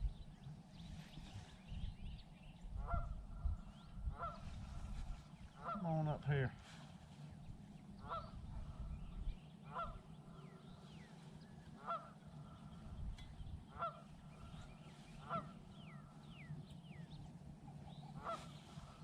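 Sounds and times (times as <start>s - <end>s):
steady low hum: 0.0s - 19.0s
bird honking: 2.8s - 5.9s, 7.9s - 19.0s.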